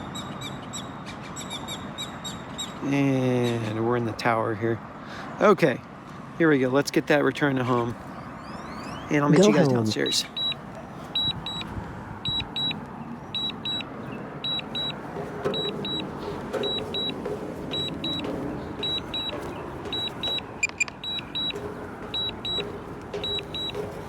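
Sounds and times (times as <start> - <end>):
short high beeps: 9.3 - 10.6, 18.8 - 21.5.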